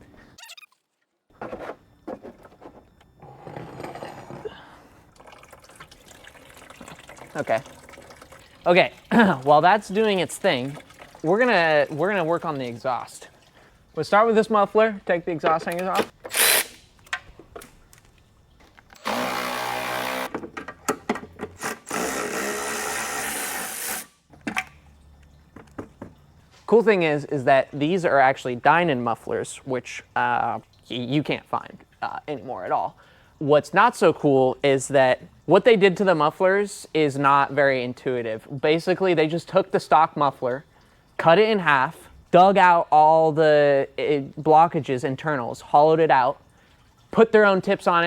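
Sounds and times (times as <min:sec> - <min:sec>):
coolant pouring and splashing: 0:05.0 - 0:14.5, 0:45.5 - 0:47.8
power tool running: 0:16.3 - 0:16.8, 0:19.0 - 0:20.4, 0:21.6 - 0:24.2.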